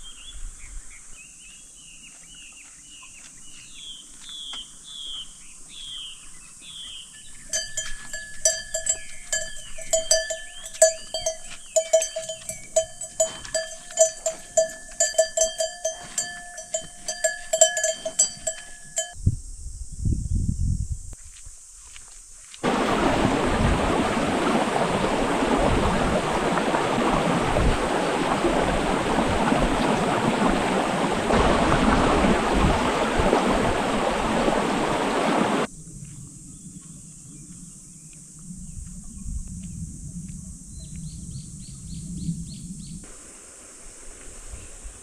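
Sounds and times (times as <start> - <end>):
bird chirping trill: 4.4 - 19.2
stream water rushing: 22.6 - 35.7.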